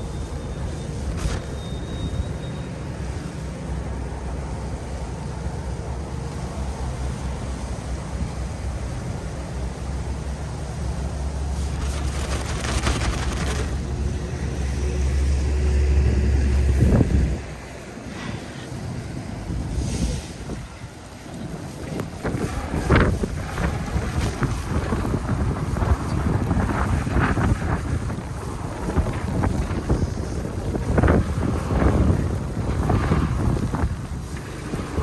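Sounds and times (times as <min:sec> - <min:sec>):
rough crackling hiss: 0:00.0 - 0:15.7
city street traffic rumbling: 0:00.0 - 0:35.0.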